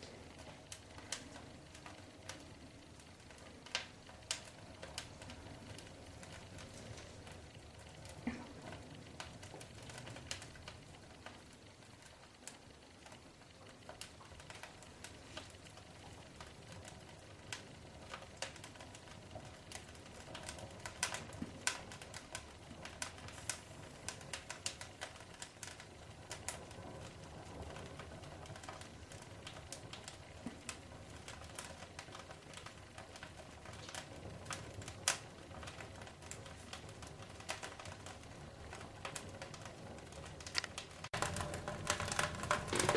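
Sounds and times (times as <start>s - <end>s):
fire crackling in fireplace: 0.0s - 42.9s.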